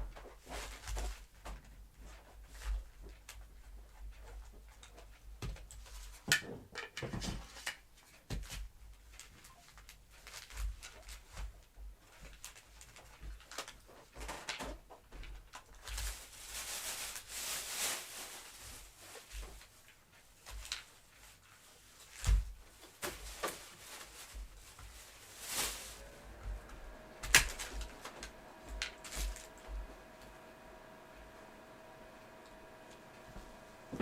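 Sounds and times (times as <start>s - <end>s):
rustling scraping: 15.7s - 34.0s.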